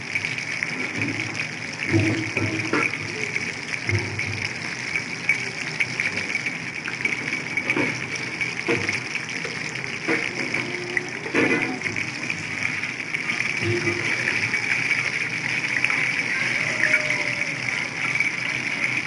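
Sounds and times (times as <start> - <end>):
food deep-frying in hot oil: 0.0 - 19.0
oil popping: 0.0 - 19.0.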